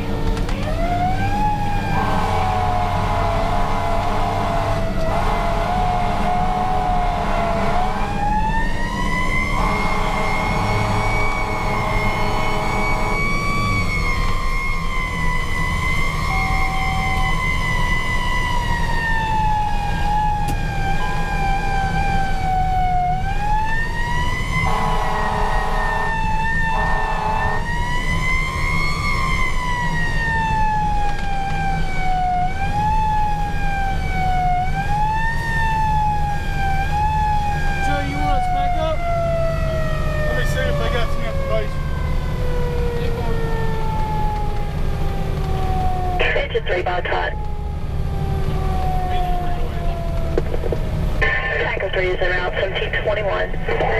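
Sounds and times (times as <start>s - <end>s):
diesel engine rumbling: 0.0s - 53.9s
fire engine siren wailing: 0.0s - 53.9s
steady-pitched horn blasts: 1.9s - 8.3s, 9.4s - 13.5s, 24.6s - 27.8s.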